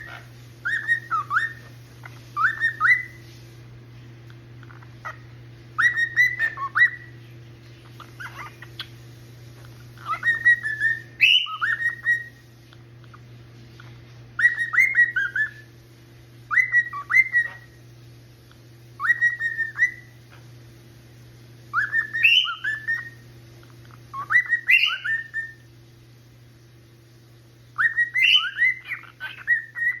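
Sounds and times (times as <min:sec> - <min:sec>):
cockatiel whistling phrases: 0:00.0 - 0:03.2, 0:05.8 - 0:07.1, 0:10.0 - 0:12.4, 0:14.4 - 0:15.7, 0:16.5 - 0:17.8, 0:19.0 - 0:20.1, 0:21.7 - 0:23.2, 0:23.8 - 0:25.6, 0:27.8 - 0:30.0.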